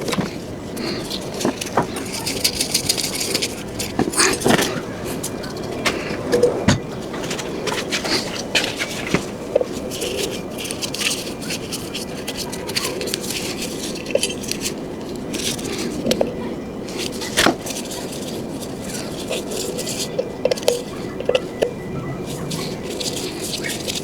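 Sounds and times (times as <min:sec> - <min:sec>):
tools clicking and knocking: 0:00.0 - 0:18.4.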